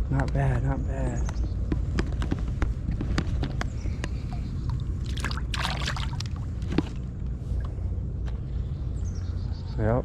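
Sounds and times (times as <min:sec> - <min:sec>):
water splashing and dripping: 0:04.3 - 0:07.0.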